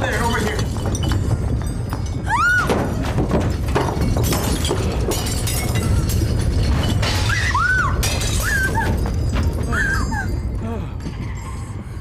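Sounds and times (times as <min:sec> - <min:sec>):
glass shattering: 0:00.0 - 0:10.5
objects crashing and breaking: 0:00.0 - 0:10.6
deep continuous rumble: 0:00.0 - 0:12.0.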